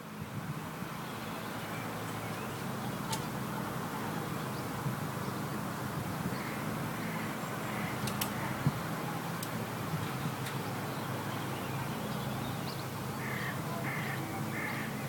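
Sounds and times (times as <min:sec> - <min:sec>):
faint clicks: 0:08.0 - 0:08.4.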